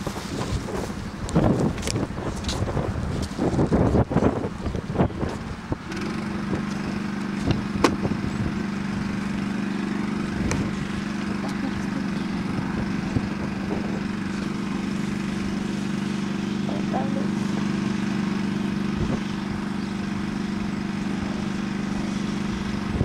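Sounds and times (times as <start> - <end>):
low machine hum: 5.0 - 23.0.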